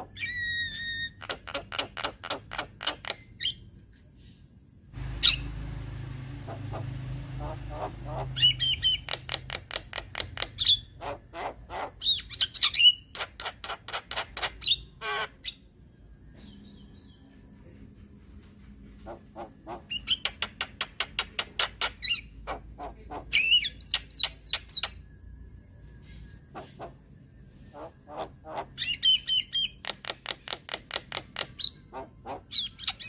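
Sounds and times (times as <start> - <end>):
low rumbling noise: 4.9 - 9.6
myna bird chattering: 5.1 - 5.6, 6.4 - 15.6.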